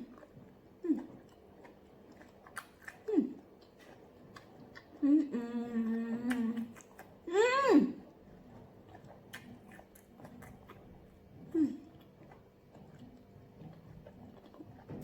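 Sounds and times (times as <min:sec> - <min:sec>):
wet chewing with lip smacks: 0:00.0 - 0:15.0
person humming mm: 0:05.0 - 0:06.7.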